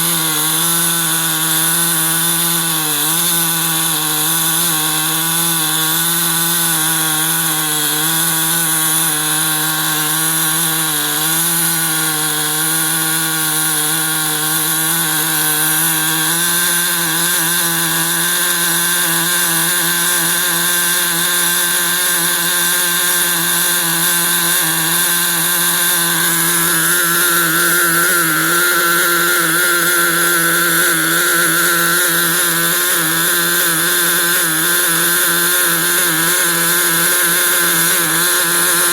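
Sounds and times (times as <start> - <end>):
model engine running: 0.0 - 38.9.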